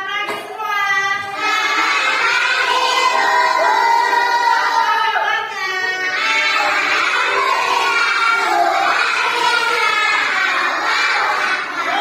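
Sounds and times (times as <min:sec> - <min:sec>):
children singing in unison: 0:00.1 - 0:12.0.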